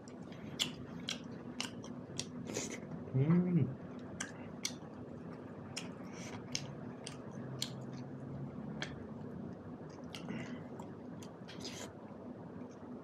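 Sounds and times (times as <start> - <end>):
person chewing with mouth open: 0.0 - 2.9, 3.9 - 8.2, 8.8 - 12.0.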